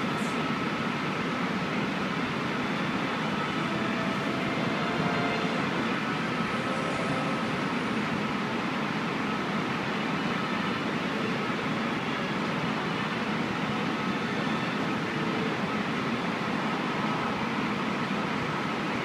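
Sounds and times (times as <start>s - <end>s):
train rumbling: 0.0s - 10.2s
faint constant whine: 0.0s - 19.0s.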